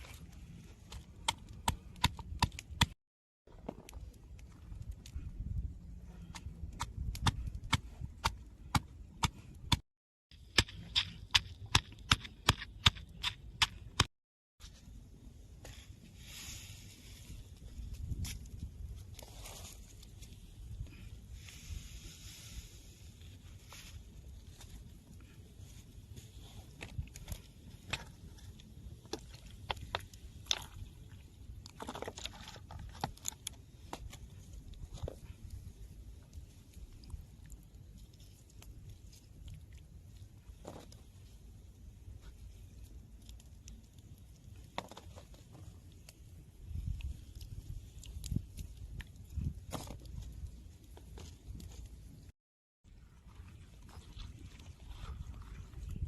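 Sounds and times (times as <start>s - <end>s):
crackly rustle: 15.6s - 52.3s.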